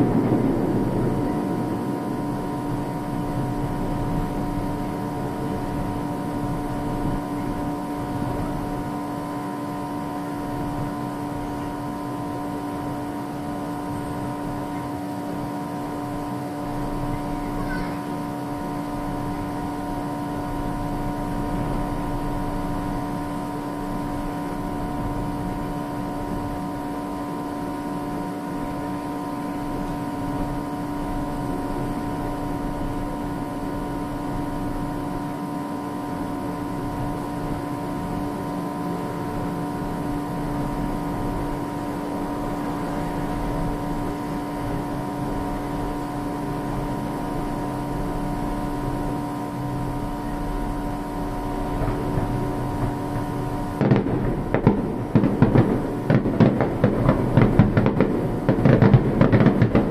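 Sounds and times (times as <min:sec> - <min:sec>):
mechanical hum: 0:00.0 - 0:59.9
fireworks bursting and crackling: 0:51.5 - 0:59.9.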